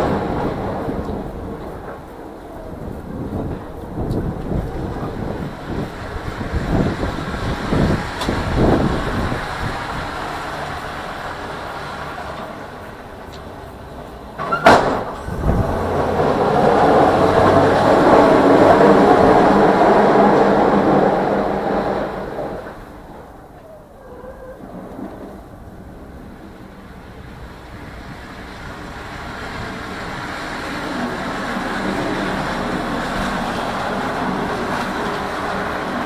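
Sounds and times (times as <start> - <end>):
vehicle noise: 0.0 - 36.0
broad rushing sound: 14.8 - 23.4, 25.0 - 36.0.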